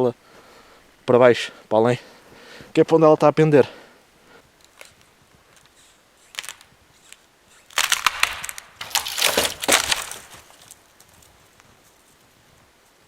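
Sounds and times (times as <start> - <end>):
tree trunk cracking and splintering: 6.4 - 6.7, 7.7 - 10.8.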